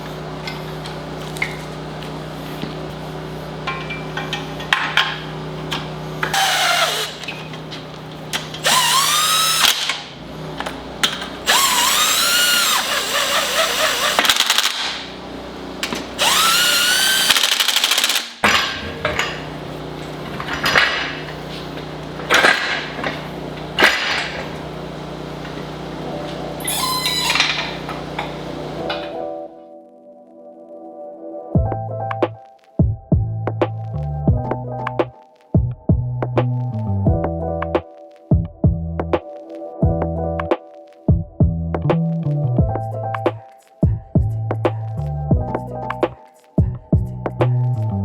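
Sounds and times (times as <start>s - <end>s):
steady low hum: 0.0s - 14.2s, 18.4s - 29.1s
power tool whining: 0.0s - 29.2s.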